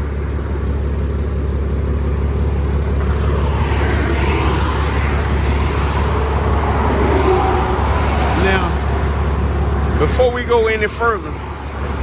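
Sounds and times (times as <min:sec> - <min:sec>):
road traffic rumble: 0:02.2 - 0:12.0
vehicle passing: 0:02.9 - 0:12.0.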